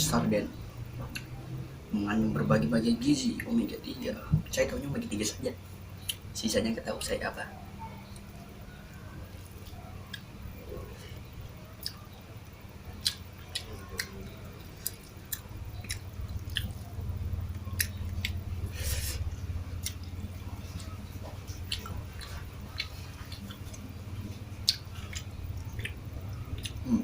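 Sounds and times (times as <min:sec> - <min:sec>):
person chewing with mouth clicks: 0:01.0 - 0:01.4, 0:06.0 - 0:06.3, 0:09.6 - 0:27.0.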